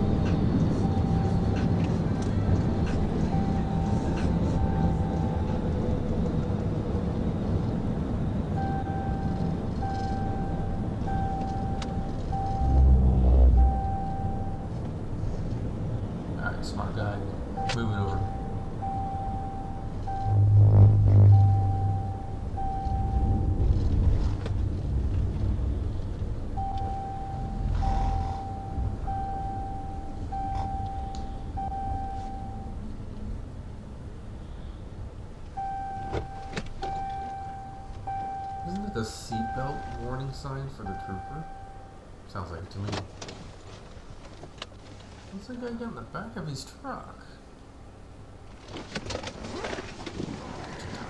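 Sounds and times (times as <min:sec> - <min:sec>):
vehicle road and engine noise: 0:00.0 - 0:51.0
electronic tone beeps: 0:03.2 - 0:05.6, 0:08.6 - 0:14.8, 0:17.6 - 0:23.9, 0:26.6 - 0:32.9, 0:35.6 - 0:42.0
loud low rumble: 0:08.5 - 0:34.3
repeating electronic beep: 0:17.6 - 0:23.8.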